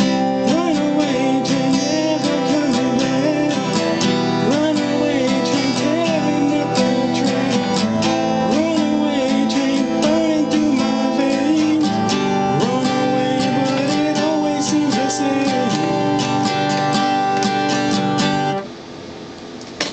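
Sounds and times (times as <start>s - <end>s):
acoustic guitar strumming: 0.0s - 18.7s
bending guitar melody: 0.0s - 18.7s.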